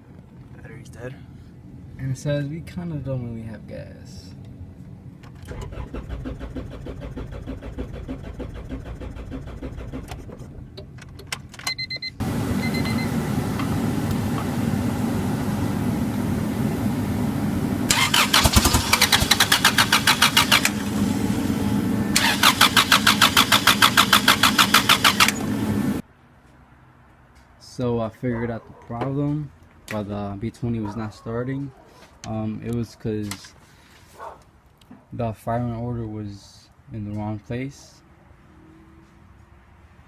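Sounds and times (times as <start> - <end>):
engine cranking without starting: 5.5 - 10.3, 12.2 - 26.0
short beeps: 11.8 - 13.1
steady hum: 12.2 - 26.0.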